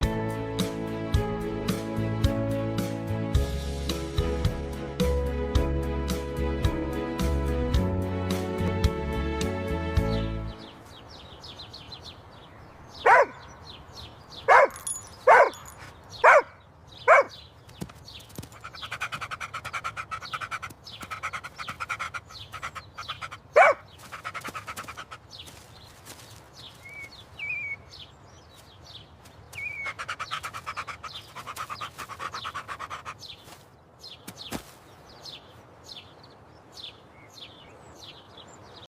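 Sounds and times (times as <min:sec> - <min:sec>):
rhythmic panting: 0:18.4 - 0:25.4, 0:29.8 - 0:33.4
puppy yapping: 0:23.6 - 0:23.8.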